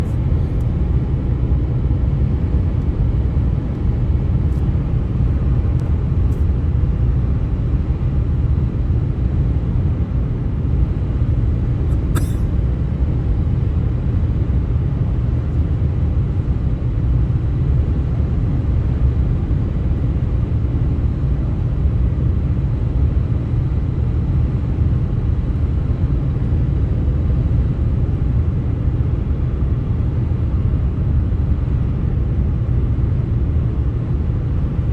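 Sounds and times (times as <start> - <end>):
brief click: 12.2 - 12.5.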